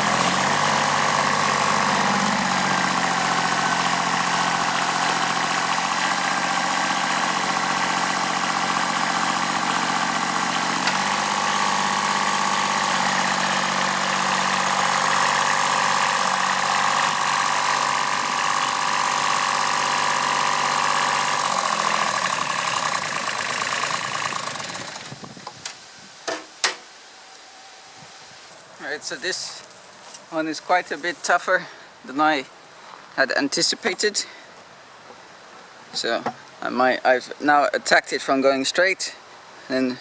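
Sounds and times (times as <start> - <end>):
diesel tractor engine running: 0.0 - 25.6.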